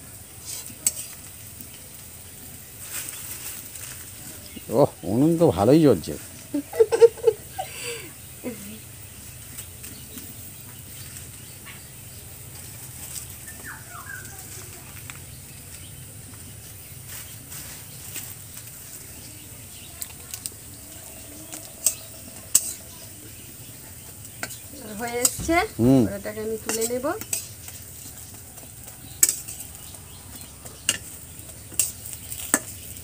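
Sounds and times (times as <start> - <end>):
fritters sizzling in oil: 0.0 - 33.0
woman's voice: 24.7 - 27.2.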